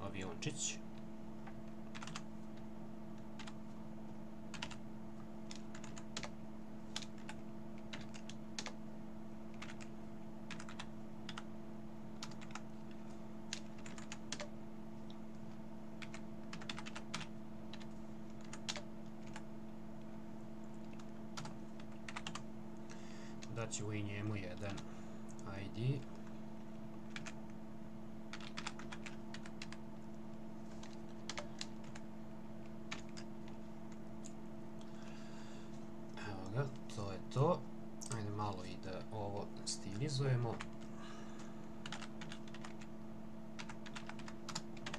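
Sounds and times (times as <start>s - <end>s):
low electrical hum: 0.0s - 44.9s
computer keyboard typing: 1.6s - 2.3s, 3.2s - 3.6s, 4.5s - 4.8s, 5.4s - 8.8s, 9.5s - 9.9s, 10.5s - 11.5s, 12.2s - 12.7s, 13.5s - 14.6s, 16.0s - 19.4s, 20.7s - 22.5s, 27.1s - 27.4s, 28.3s - 29.8s, 30.7s - 32.1s, 32.9s - 34.0s, 41.8s - 42.9s, 43.6s - 44.9s.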